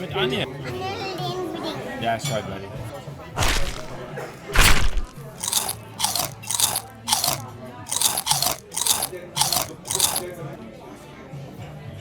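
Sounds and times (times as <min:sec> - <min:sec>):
person chewing crunchy snack: 0:03.4 - 0:10.3.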